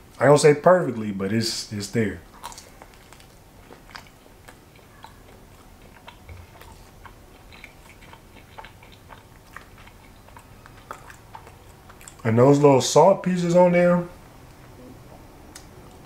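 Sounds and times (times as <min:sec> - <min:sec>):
faint chewing with wet clicks: 0:02.2 - 0:12.6, 0:14.4 - 0:16.0.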